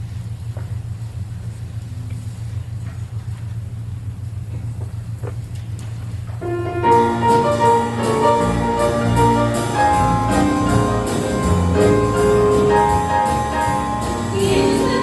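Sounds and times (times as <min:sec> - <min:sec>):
low steady hum: 0:00.0 - 0:15.0
jazzy christmas piano and band: 0:06.4 - 0:15.0.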